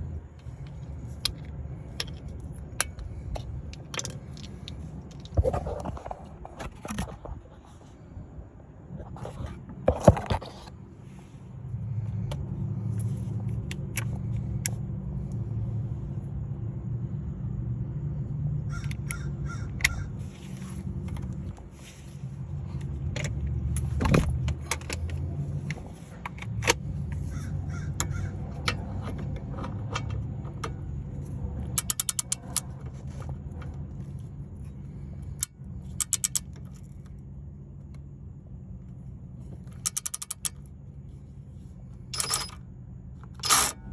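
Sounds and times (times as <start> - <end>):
steady low hum: 0.0 - 43.9
ratchet clicking: 31.7 - 32.7, 35.3 - 36.9, 39.7 - 40.7, 42.1 - 42.6, 43.3 - 43.8
metal tools clinking and knocking: 42.1 - 42.6.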